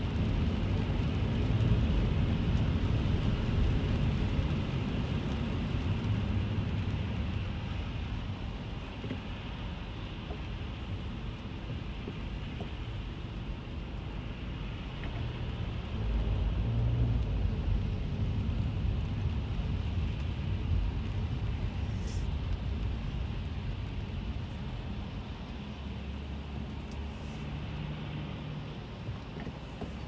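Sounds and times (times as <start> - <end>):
faint rain hiss: 0.0 - 30.0
road and engine rumble in car: 0.0 - 30.0.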